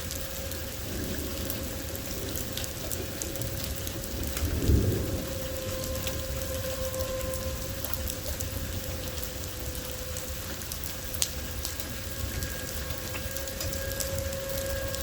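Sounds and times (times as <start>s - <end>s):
rain pattering: 0.0s - 15.0s
low rumble: 0.6s - 12.4s.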